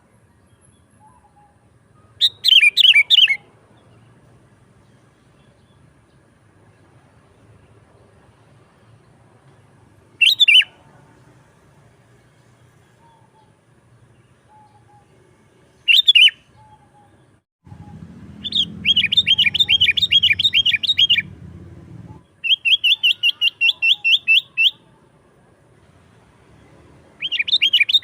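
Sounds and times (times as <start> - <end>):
bulbul calling: 1.0 - 3.5, 10.2 - 10.8, 14.3 - 15.2, 15.9 - 21.3, 22.0 - 24.9, 27.2 - 28.0.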